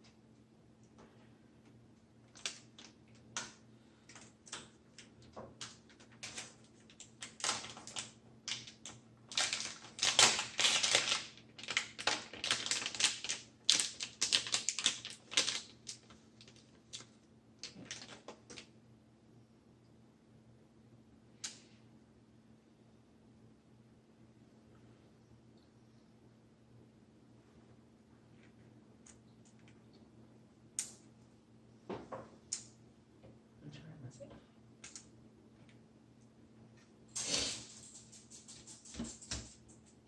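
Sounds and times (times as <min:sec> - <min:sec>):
crinkly plastic bag rustling: 0:05.0 - 0:18.7.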